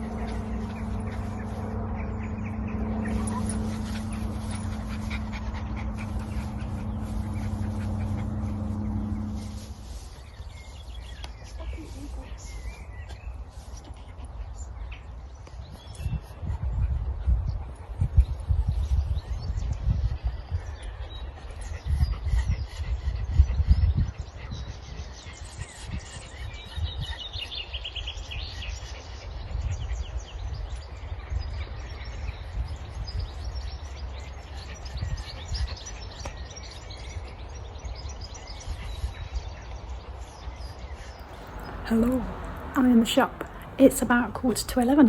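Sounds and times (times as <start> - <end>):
low rumble: 0.0 - 10.8, 41.0 - 45.0
small birds chirping: 0.0 - 45.0.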